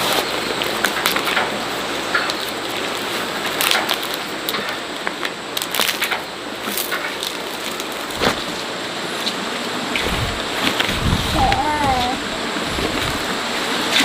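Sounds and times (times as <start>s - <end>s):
steady rain: 7.2s - 14.0s.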